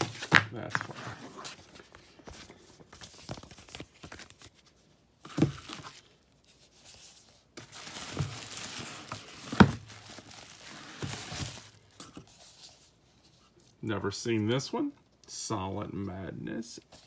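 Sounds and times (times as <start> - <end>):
packaging crinkling and rustling: 0.0 - 12.4.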